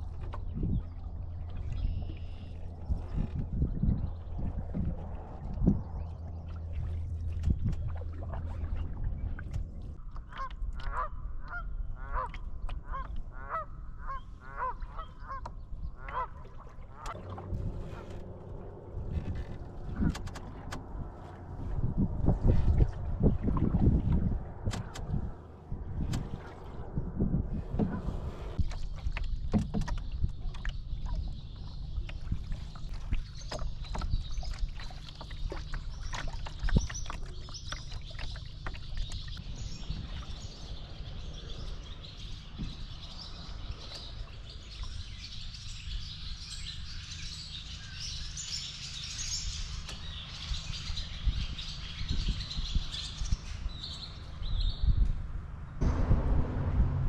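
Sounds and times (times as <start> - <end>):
wind rumble on microphone: 0.0 - 57.0
canoe paddle knocks and splashes: 2.7 - 11.0, 25.9 - 40.5.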